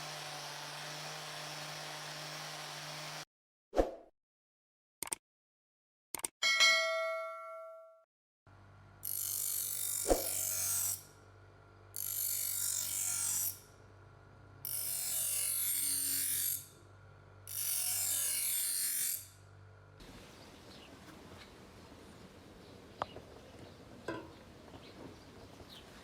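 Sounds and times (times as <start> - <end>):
blade grinding on abrasive: 0.0 - 3.2, 9.0 - 11.1, 12.0 - 13.7, 14.6 - 16.8, 17.4 - 19.4
sharp click: 5.0 - 5.2.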